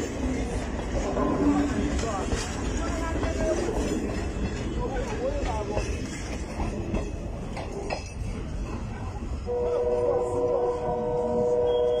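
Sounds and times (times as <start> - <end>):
train wheels clicking: 0.0 - 10.0
train rumble: 0.0 - 12.0
train horn chord: 9.4 - 12.0.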